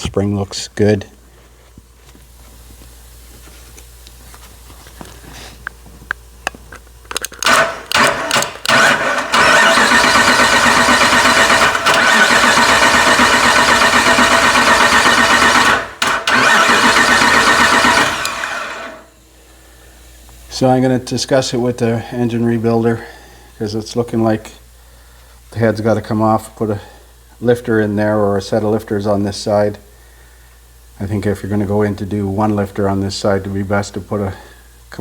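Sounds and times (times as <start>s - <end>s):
starter clicks: 7.1s - 19.0s
engine cranking on starter: 7.4s - 19.1s.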